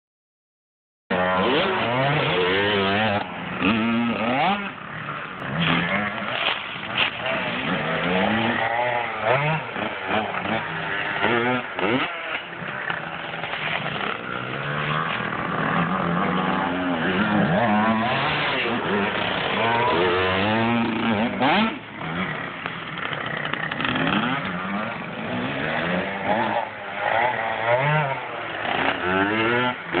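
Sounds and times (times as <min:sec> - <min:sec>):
dirt bike engine revving: 0:01.1 - 0:30.0.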